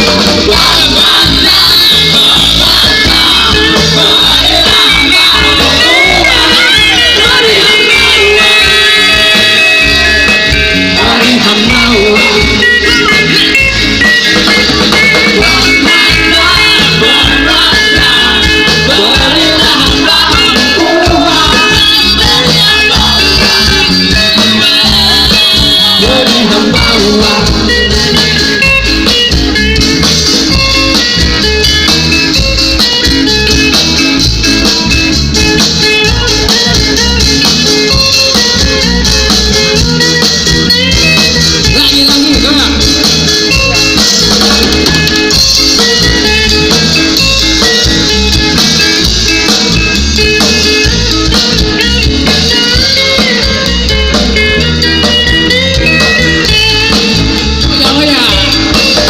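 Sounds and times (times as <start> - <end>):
band playing instrumental: 0.0 - 59.0.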